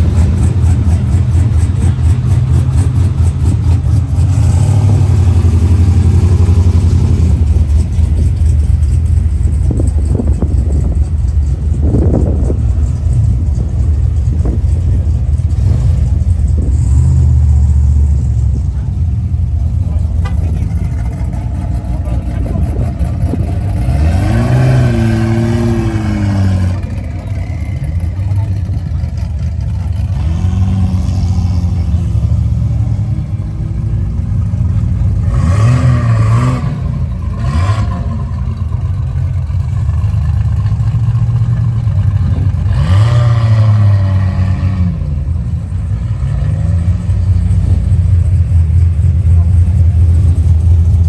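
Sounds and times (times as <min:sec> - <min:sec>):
car engines revving: 0:00.0 - 0:51.0
people talking: 0:09.7 - 0:36.0, 0:41.2 - 0:42.8, 0:43.9 - 0:51.0.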